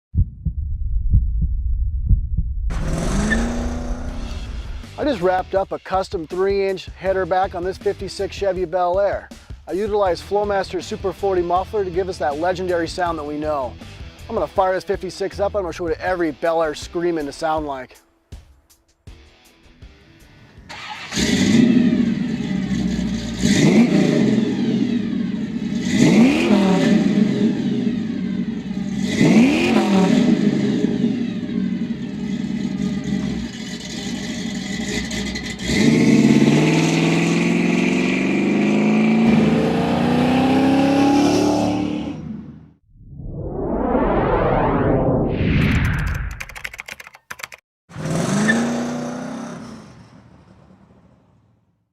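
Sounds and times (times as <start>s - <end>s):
car engine revving: 2.7s - 5.1s, 20.8s - 42.8s.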